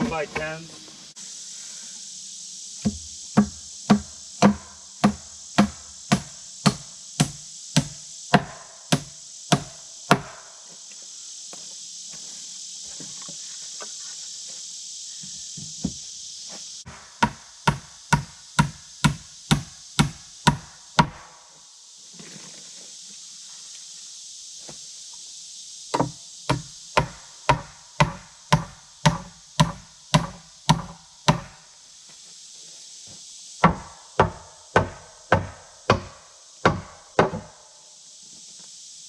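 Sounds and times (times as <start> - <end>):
high buzz of insects: 0.0 - 39.0.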